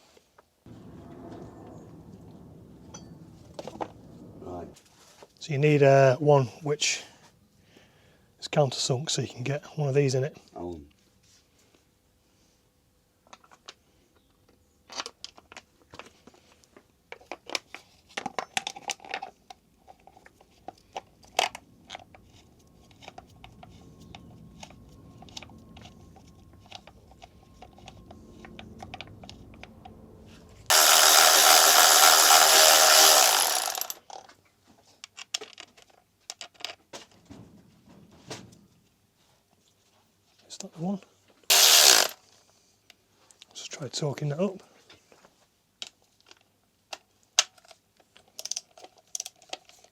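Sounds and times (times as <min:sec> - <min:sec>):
power tool running: 0:30.6 - 0:34.0, 0:41.5 - 0:42.2.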